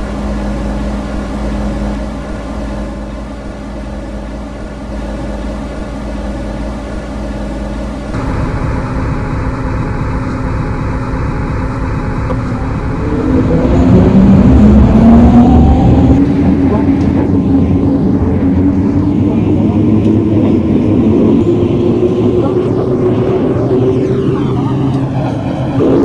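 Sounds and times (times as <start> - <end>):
electric train humming: 0.0 - 26.0
traction motor whine rising: 0.0 - 26.0.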